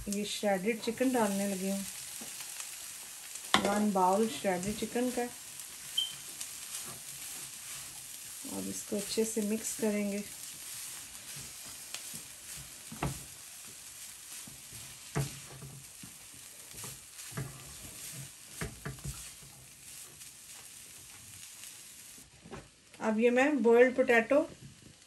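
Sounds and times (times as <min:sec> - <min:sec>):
chicken sizzling in a wok: 0:00.0 - 0:22.4, 0:24.3 - 0:25.0
spatula scraping a pan: 0:03.6 - 0:21.8.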